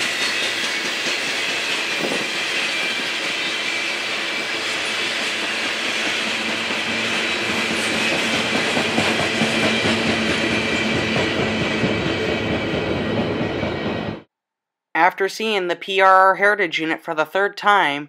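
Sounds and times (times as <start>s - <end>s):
high wheel squeal: 0.0s - 13.8s
train wheels clattering on rails: 0.0s - 14.2s.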